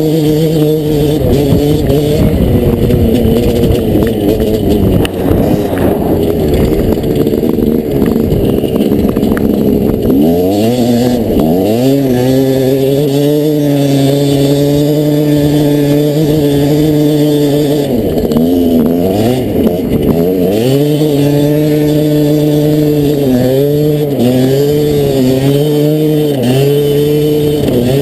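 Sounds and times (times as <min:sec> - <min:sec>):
dirt bike engine running rough: 0:00.0 - 0:28.0
engine clicks: 0:02.9 - 0:10.2.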